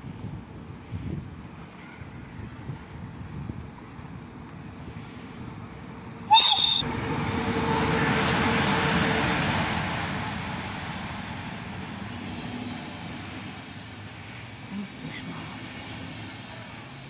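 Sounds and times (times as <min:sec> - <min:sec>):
train rolling past: 0:05.0 - 0:17.0
locomotive horn blast: 0:06.3 - 0:06.9.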